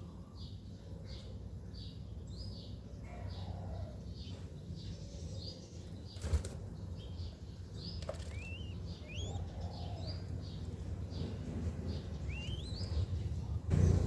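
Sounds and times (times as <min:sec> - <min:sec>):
birds chirping: 0:04.2 - 0:14.0
steady low hum: 0:08.4 - 0:14.0.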